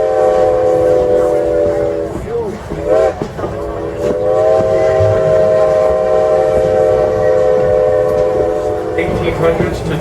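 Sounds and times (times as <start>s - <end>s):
steam locomotive whistle: 0.0s - 9.6s
rumble of moving train: 0.0s - 10.0s.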